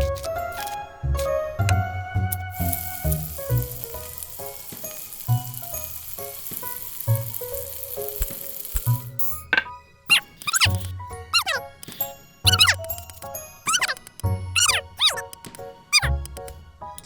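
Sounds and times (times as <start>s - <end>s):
background music: 0.0s - 17.0s
hot oil sizzling: 2.3s - 9.4s.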